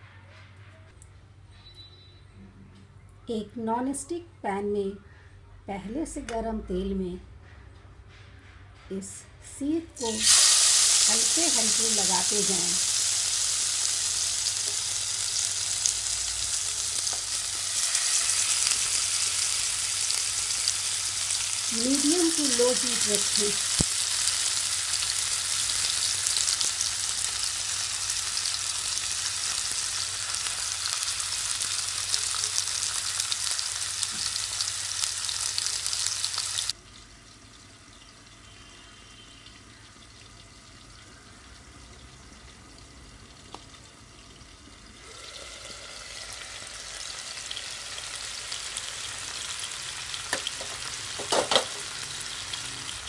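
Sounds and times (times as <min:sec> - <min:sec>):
meat sizzling in hot oil: 0:10.0 - 0:36.8, 0:45.0 - 0:53.0.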